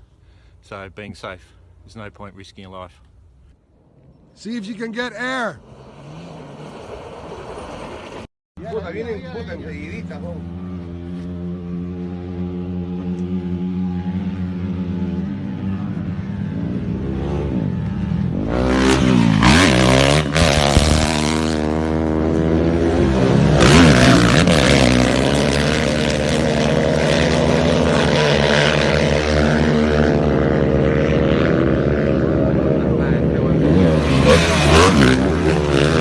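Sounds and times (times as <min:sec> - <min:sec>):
low engine drone: 0:02.9 - 0:36.0
rally car engine revving past: 0:05.6 - 0:08.3, 0:10.1 - 0:36.0.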